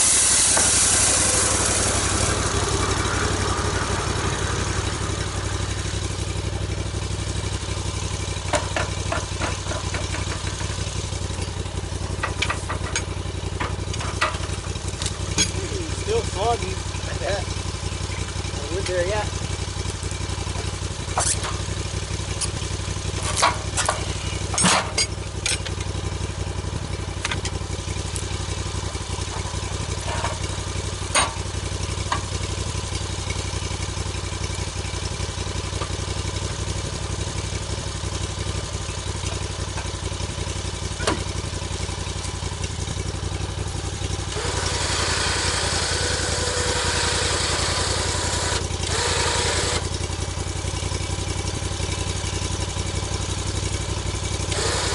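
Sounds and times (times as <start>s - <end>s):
loud rushing hiss: 0.0s - 5.9s
engine running: 0.0s - 54.9s.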